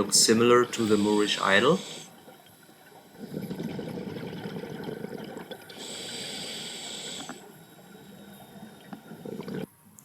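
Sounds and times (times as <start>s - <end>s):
regulator inhalation hiss: 0.7s - 3.0s, 5.7s - 8.6s
regulator exhalation bubbling: 3.1s - 9.7s.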